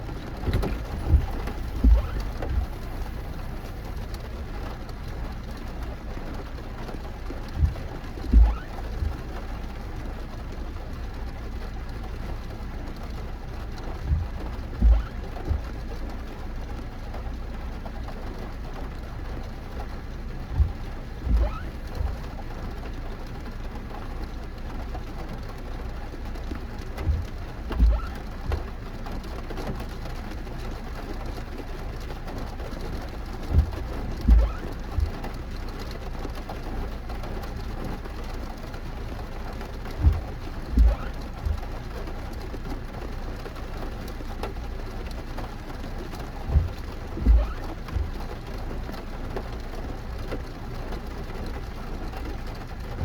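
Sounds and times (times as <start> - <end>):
short low thuds: 0.0 - 4.7, 7.4 - 9.5, 13.9 - 15.9, 20.3 - 22.5, 26.9 - 28.8, 32.9 - 35.5, 39.5 - 42.2, 44.5 - 48.7
steady rain: 0.0 - 53.0.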